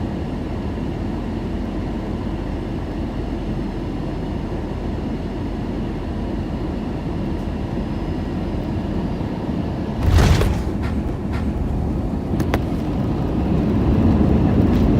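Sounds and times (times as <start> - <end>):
airplane cabin engine rumble: 0.7 - 14.9
landing gear thump: 10.0 - 13.2.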